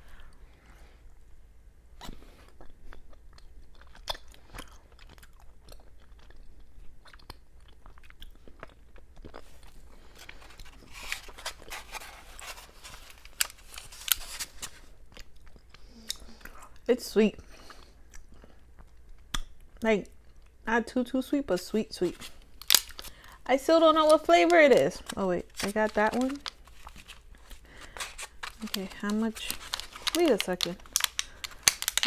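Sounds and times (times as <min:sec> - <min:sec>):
close chewing with mouth clicks: 0:02.0 - 0:10.9, 0:17.5 - 0:20.6.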